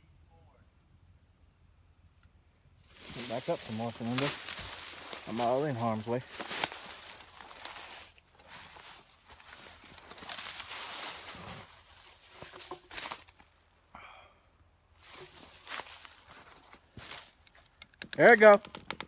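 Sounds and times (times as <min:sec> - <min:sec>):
footsteps in leaves: 0:02.9 - 0:13.6, 0:15.0 - 0:17.7.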